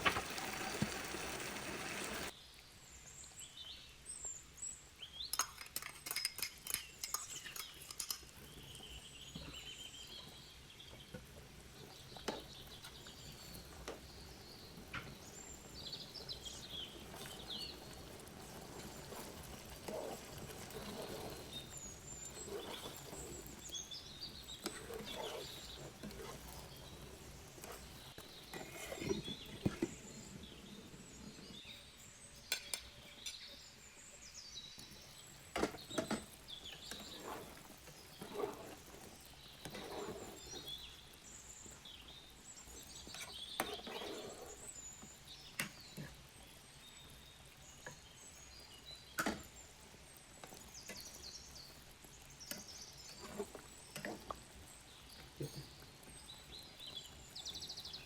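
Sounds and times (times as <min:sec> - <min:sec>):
metal spoon scraping a pot: 0:12.2 - 0:29.3, 0:35.6 - 0:40.8, 0:42.9 - 0:44.8.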